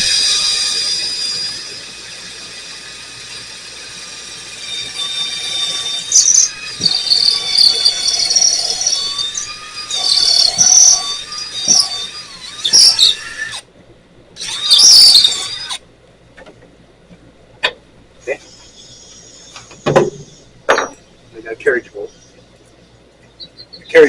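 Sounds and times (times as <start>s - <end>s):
drill bit squealing: 0.0s - 13.6s, 14.4s - 15.8s
electric drill boring: 0.0s - 13.6s, 14.4s - 15.8s.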